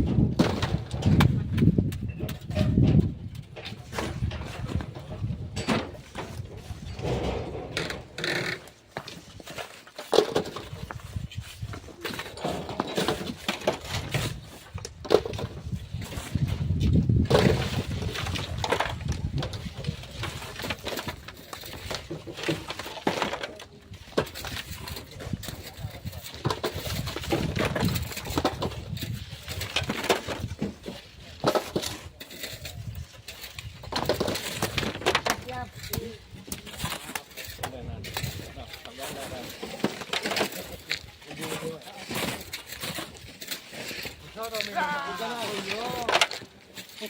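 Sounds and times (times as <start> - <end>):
hand tools digging sand and stones: 0.1 - 47.0
shovel digging sand with stones: 24.0 - 47.0.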